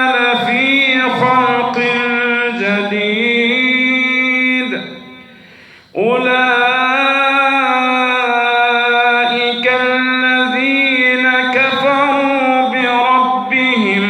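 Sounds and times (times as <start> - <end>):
man chanting melodically: 0.0 - 14.0.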